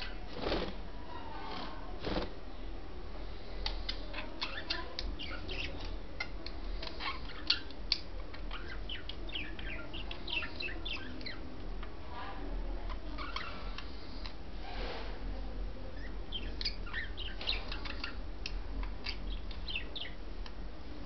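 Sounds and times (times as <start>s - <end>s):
budgerigars chirping: 3.8s - 11.4s, 16.0s - 20.2s.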